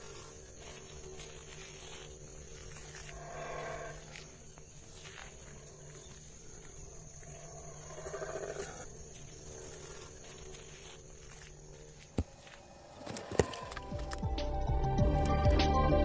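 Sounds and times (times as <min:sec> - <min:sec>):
animal calling: 0:07.2 - 0:09.9.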